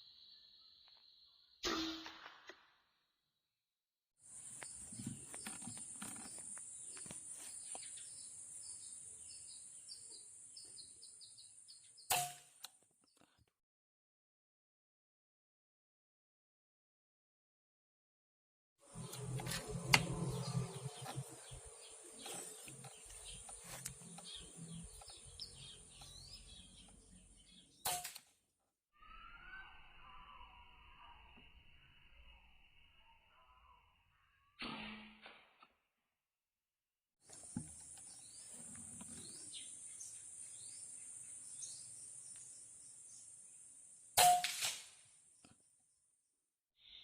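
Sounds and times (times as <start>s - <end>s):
sparrows chirping: 4.3s - 12.1s, 18.9s - 27.8s, 37.4s - 43.6s
air rifle shot: 44.2s - 45.0s.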